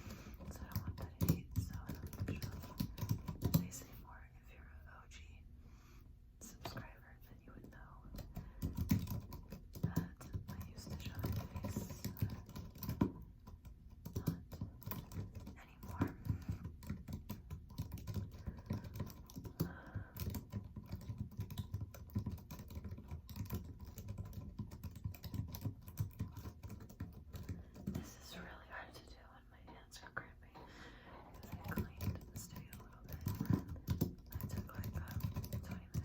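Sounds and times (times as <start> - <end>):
computer keyboard typing: 0.0 - 3.8, 8.1 - 28.1, 31.3 - 36.0.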